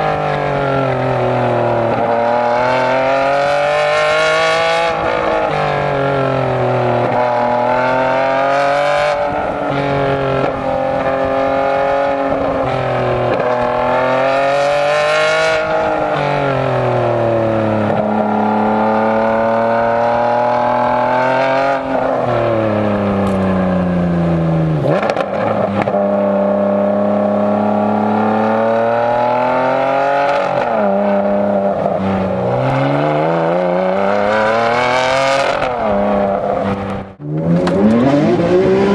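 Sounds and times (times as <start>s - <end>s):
sports car exhaust revving: 30.9s - 38.9s.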